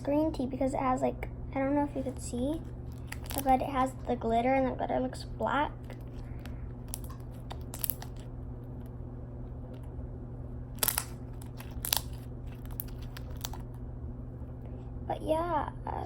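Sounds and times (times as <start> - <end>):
steady low hum: 0.0 - 16.0
slime squeezed by hand crackling: 2.6 - 3.9, 5.8 - 8.3, 10.8 - 13.8.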